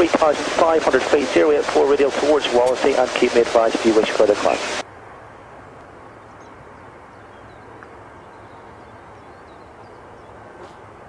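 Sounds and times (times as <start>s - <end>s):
radio hiss and hum: 0.0s - 4.8s.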